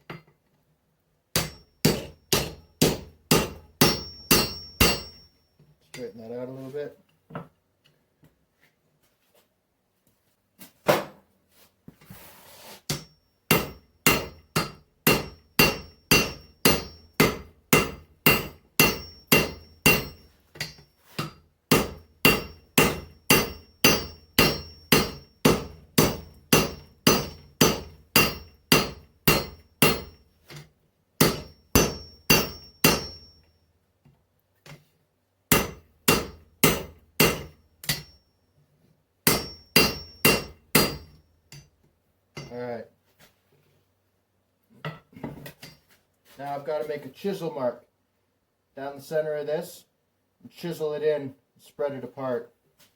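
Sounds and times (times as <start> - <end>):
hammer striking metal on anvil: 1.3 - 5.4, 12.9 - 30.2, 31.2 - 33.5, 35.5 - 38.2, 39.2 - 41.7, 42.4 - 42.6.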